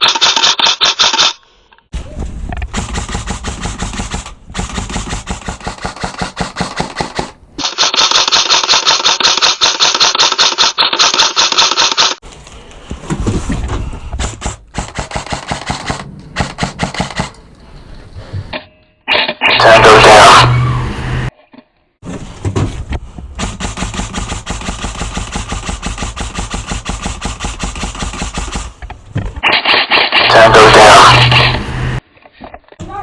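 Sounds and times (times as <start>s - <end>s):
airsoft guns firing full-auto: 2.7s - 12.2s, 14.2s - 17.3s, 19.5s - 20.9s, 29.4s - 32.0s.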